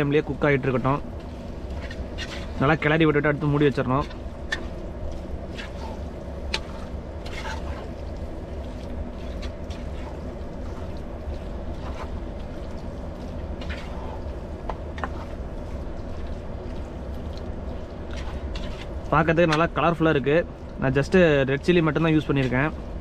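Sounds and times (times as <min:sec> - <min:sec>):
gravy bubbling in a pot: 0:00.0 - 0:23.0
low hum: 0:00.0 - 0:23.0.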